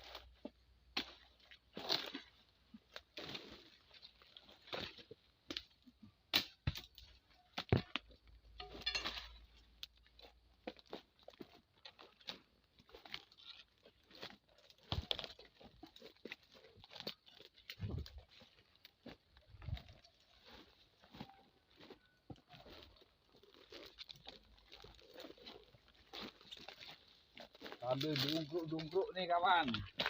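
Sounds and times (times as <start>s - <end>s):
palm fronds chopped and torn: 0.9s - 2.3s, 4.5s - 8.1s, 13.0s - 18.3s, 26.4s - 29.1s.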